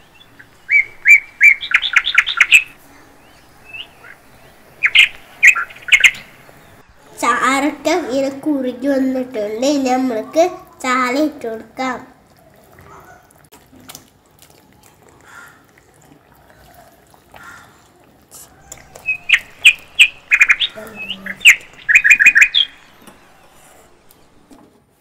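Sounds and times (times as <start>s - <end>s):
small bird chirping: 0.0s - 7.2s, 18.5s - 24.4s.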